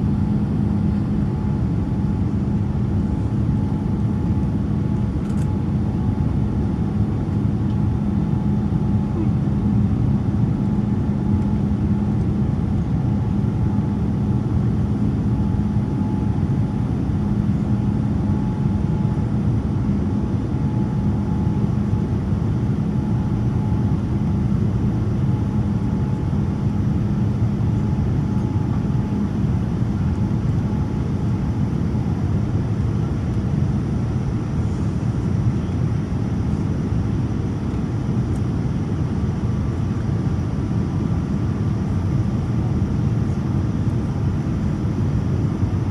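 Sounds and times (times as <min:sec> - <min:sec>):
airplane cabin engine rumble: 0:00.0 - 0:45.9.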